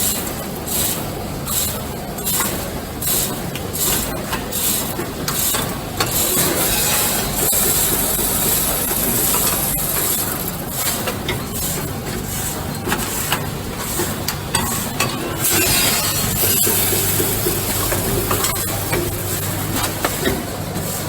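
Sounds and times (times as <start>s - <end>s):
packing machine hiss and hum: 0.0s - 21.0s.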